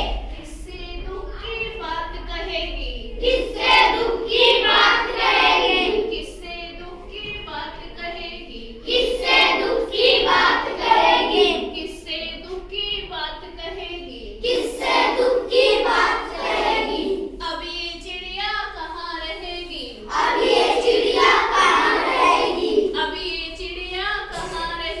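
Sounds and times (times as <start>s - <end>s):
children singing together: 3.2s - 6.4s, 8.4s - 12.0s, 14.3s - 17.4s, 20.0s - 23.2s.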